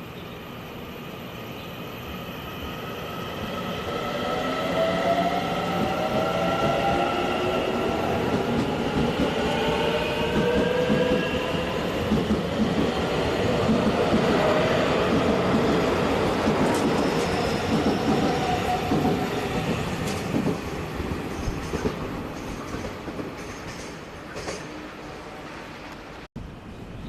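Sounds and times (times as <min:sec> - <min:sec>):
train rumbling through station: 0:00.0 - 0:27.0.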